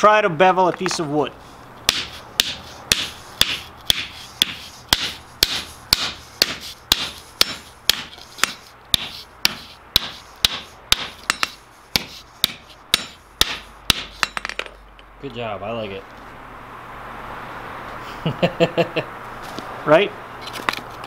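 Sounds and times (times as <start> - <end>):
hammer striking wood on anvil: 1.9 - 14.7.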